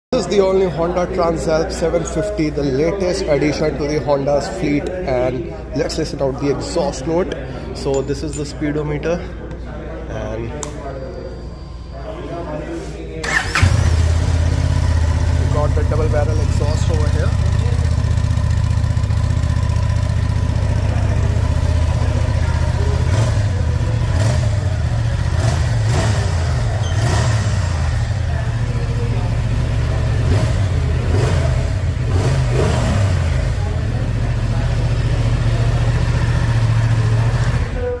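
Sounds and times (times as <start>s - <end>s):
motorcycle engine idling: 13.3s - 38.0s.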